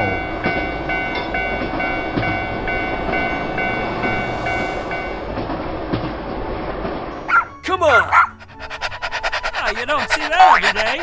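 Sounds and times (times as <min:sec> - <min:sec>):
railroad crossing bell ringing: 0:00.0 - 0:05.3
passing train rumble: 0:00.0 - 0:11.0.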